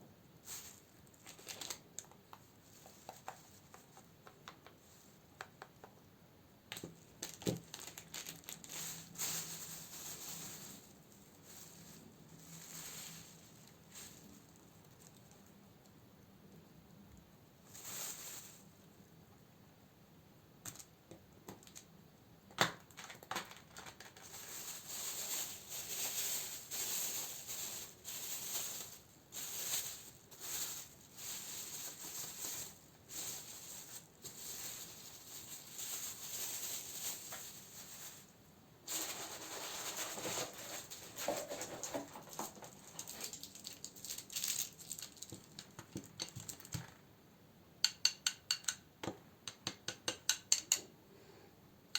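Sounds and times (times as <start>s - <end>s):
plastic and paper crinkling: 0.4s - 5.6s, 6.7s - 15.6s, 17.6s - 19.0s, 22.6s - 47.0s.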